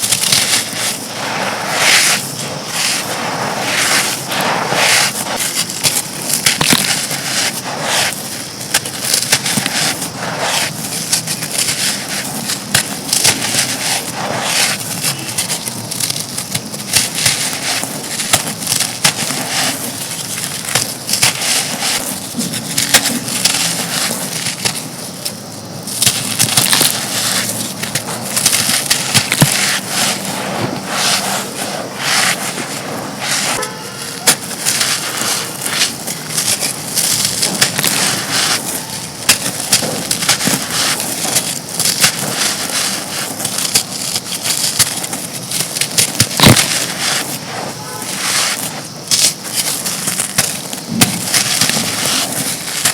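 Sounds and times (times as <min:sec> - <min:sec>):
dry material crunching and crackling: 0:00.0 - 0:52.9.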